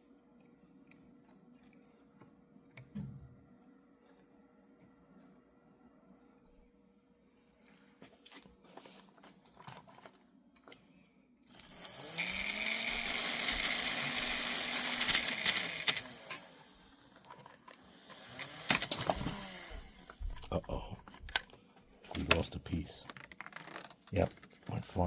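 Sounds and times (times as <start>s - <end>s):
electric motor whirring: 11.5s - 20.6s.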